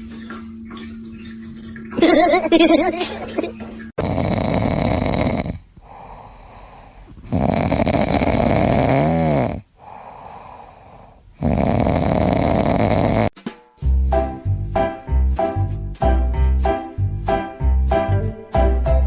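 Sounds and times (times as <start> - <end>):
pet snoring: 4.0 - 13.3.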